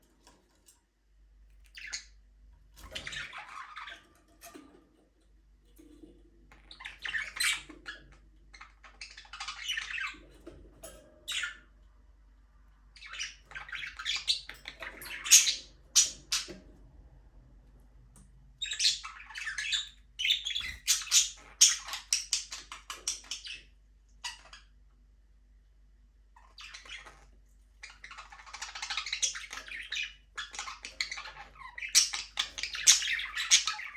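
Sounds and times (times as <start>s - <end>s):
budgerigars chirping: 1.7s - 2.2s, 6.5s - 10.2s, 11.3s - 11.7s, 12.9s - 16.6s, 18.6s - 24.8s, 26.4s - 33.9s.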